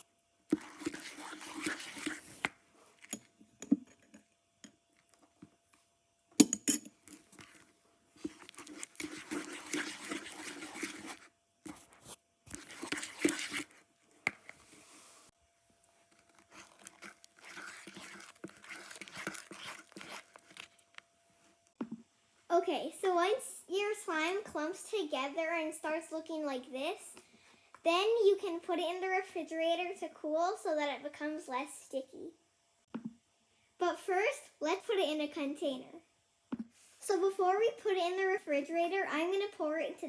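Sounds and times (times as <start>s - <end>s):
slime squelching and crackling: 0.0s - 2.5s, 8.2s - 13.7s, 16.1s - 21.0s.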